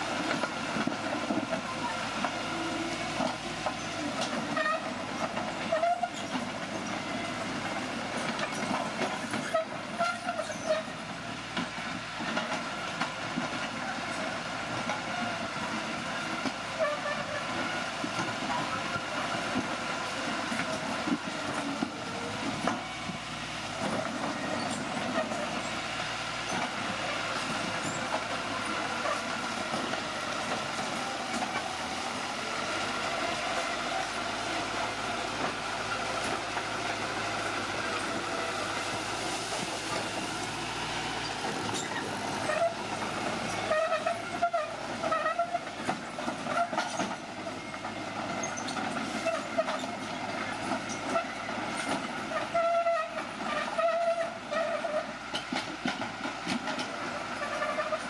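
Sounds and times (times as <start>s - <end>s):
heavy machine running: 20.4s - 58.0s.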